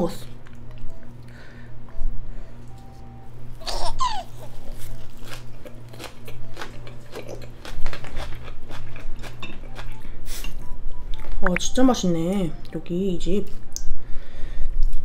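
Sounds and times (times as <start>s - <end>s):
wet crunchy chewing: 3.6s - 11.6s.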